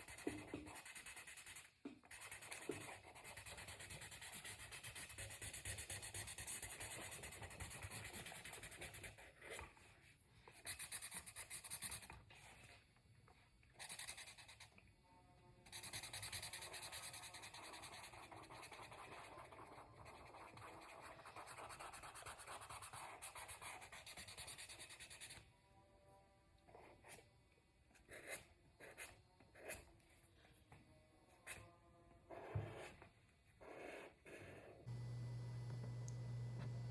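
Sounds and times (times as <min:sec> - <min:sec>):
crayon scratching on paper: 0:00.0 - 0:09.9, 0:13.8 - 0:14.8, 0:15.6 - 0:25.4, 0:26.7 - 0:27.3, 0:27.9 - 0:30.1, 0:32.3 - 0:34.8.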